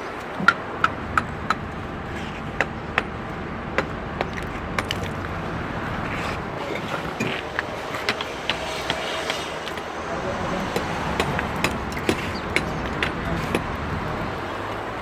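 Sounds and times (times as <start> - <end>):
traffic-like rumble: 0.0 - 15.0
sharp ringing knocks: 7.1 - 14.2.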